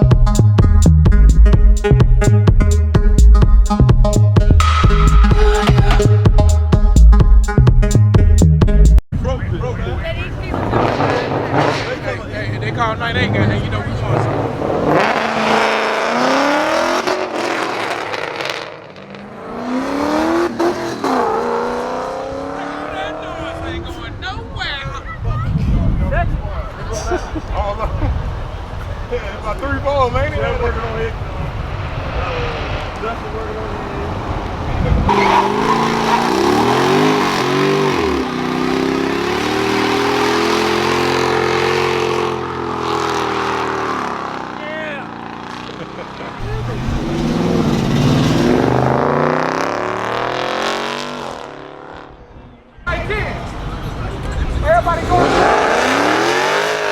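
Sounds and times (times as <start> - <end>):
car engine accelerating hard: 10.2 - 23.9, 31.0 - 52.2, 53.4 - 56.9.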